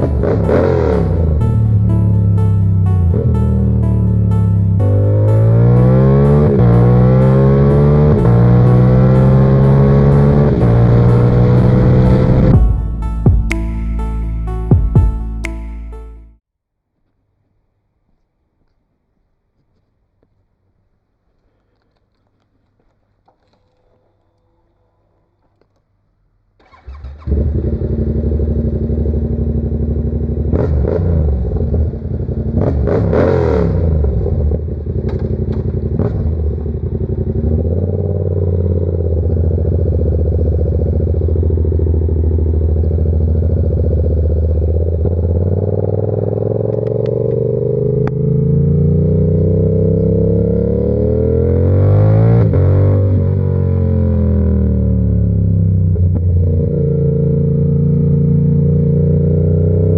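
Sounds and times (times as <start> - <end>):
motorcycle engine idling and revving: 0.0 - 13.6, 26.6 - 59.9.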